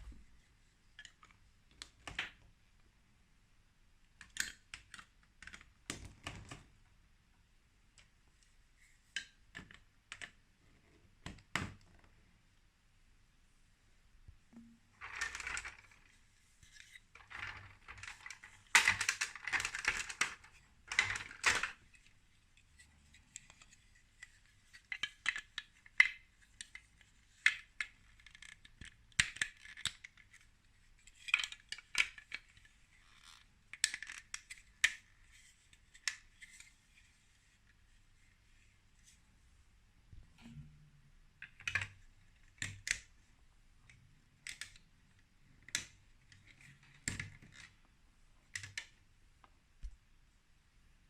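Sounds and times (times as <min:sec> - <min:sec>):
plastic toy pieces clattering: 0:15.0 - 0:21.8
plastic parts clicking together: 0:15.0 - 0:22.2, 0:23.1 - 0:36.7, 0:41.4 - 0:43.1, 0:43.9 - 0:47.8, 0:48.5 - 0:49.0.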